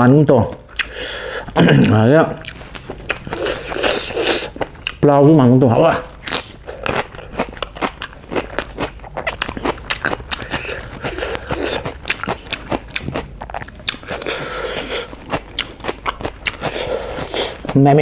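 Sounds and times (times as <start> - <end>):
person chewing crunchy food: 0.4 - 5.1, 5.7 - 18.0.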